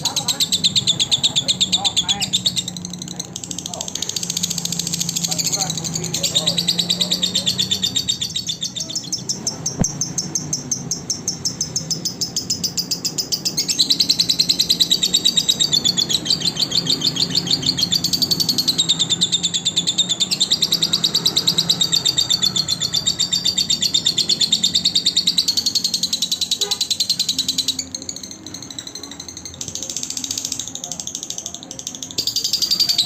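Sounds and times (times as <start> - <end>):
lovebird chattering trill: 0.0 - 33.0.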